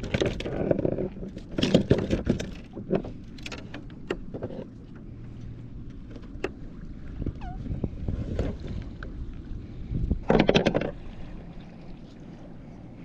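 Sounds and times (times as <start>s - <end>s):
water slapping kayak hull: 0.0s - 13.0s
wind buffeting microphone: 6.3s - 13.0s
small clicks and knocks: 10.2s - 11.0s.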